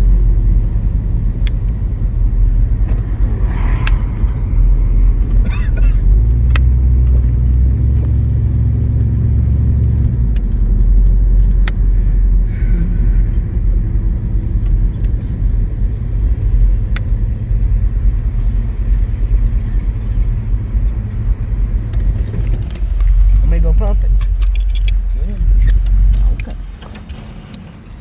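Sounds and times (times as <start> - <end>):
car engine rumbling: 0.0 - 28.0
sharp clicks: 6.4 - 8.1.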